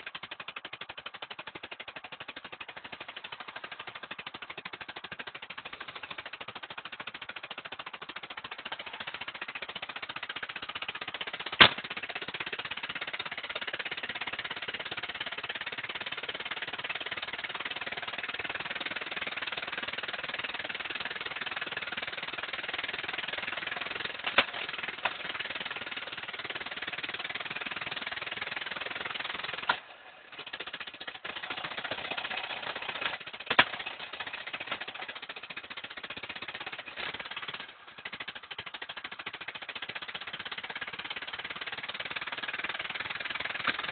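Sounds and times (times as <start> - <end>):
sharp clicks: 0.0 - 13.7
car engine running rough: 0.0 - 39.5.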